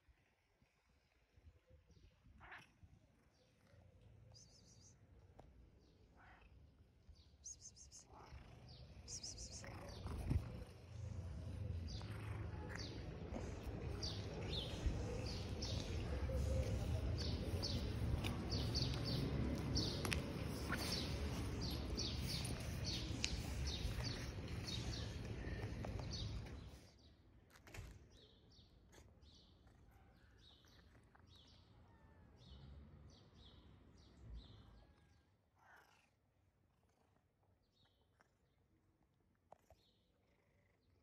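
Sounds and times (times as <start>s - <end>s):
small birds chirping: 0.1s - 27.2s, 28.1s - 41.0s
low outdoor rumble: 8.7s - 26.7s.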